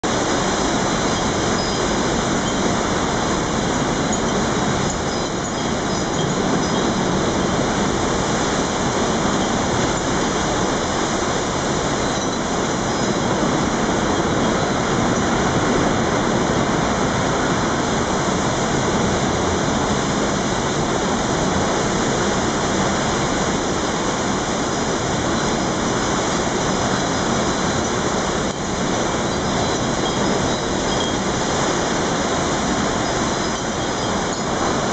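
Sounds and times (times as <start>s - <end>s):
wind and rain rushing: 0.0s - 34.9s.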